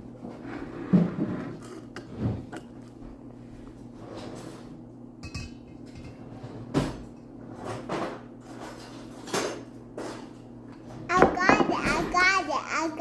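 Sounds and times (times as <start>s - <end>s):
bowls cups and utensils clinking: 5.2s - 6.3s.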